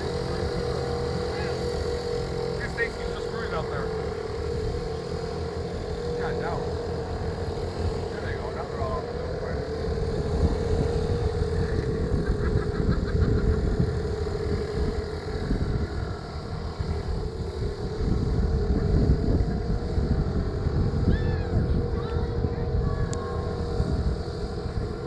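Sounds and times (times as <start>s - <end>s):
boat motor humming: 0.0s - 25.0s.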